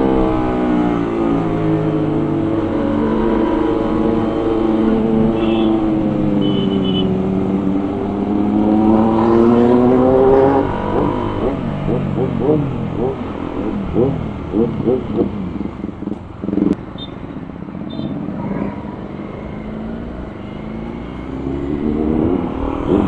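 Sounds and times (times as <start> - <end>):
motorcycle engine accelerating: 7.4 - 16.8, 20.6 - 23.0.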